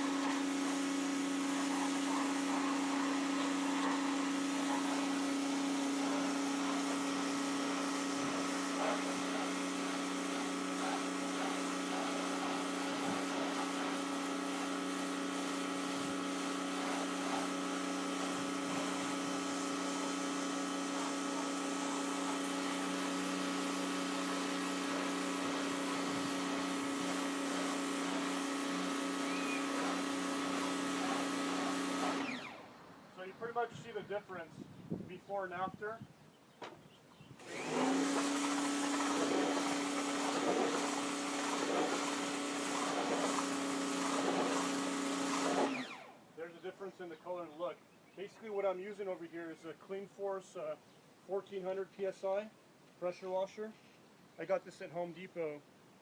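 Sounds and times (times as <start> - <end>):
water jet hissing: 0.0 - 32.4, 37.5 - 45.9
pressure washer motor hum: 0.0 - 34.4, 37.4 - 46.3.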